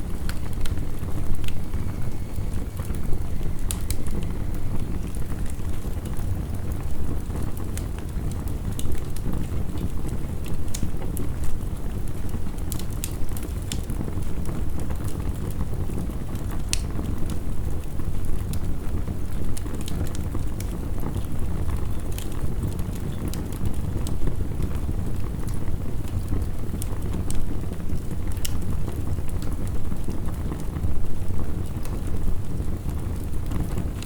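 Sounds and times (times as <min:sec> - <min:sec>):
heavy rain: 0:00.0 - 0:09.8
wood fire crackling and popping: 0:00.0 - 0:34.0.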